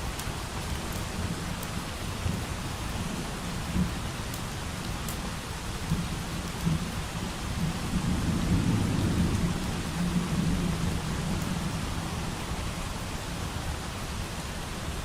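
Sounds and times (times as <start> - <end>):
steady rain hiss: 0.0 - 15.0
distant thunder rumble: 7.5 - 11.9.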